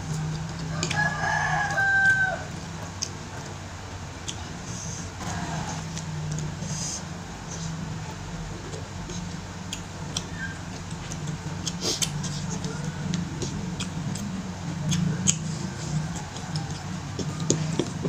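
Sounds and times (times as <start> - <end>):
chewing and lip smacking: 0.0 - 3.6, 4.2 - 18.0
steady low hum: 0.0 - 18.0.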